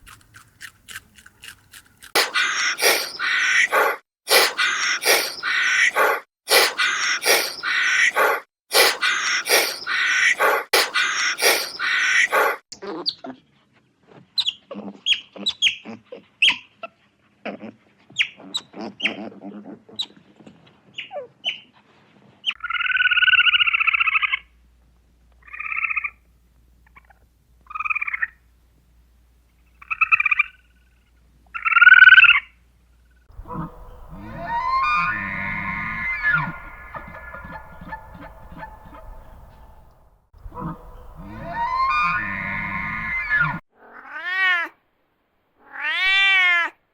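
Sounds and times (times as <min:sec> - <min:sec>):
farmyard birds calling: 0:02.0 - 0:12.6, 0:33.4 - 0:43.6.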